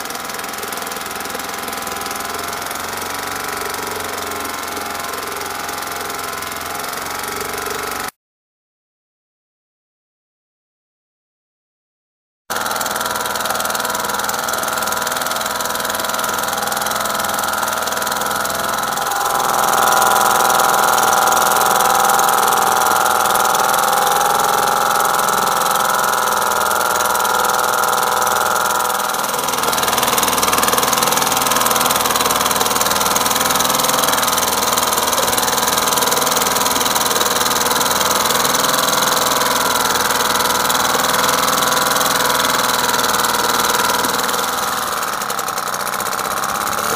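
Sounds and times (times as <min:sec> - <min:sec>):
outboard motor running: 0:00.0 - 0:08.2, 0:12.5 - 0:46.9.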